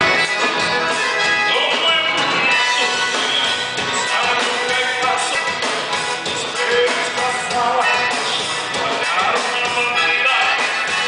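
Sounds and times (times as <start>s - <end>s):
accordion dance-band music: 0.0s - 11.0s.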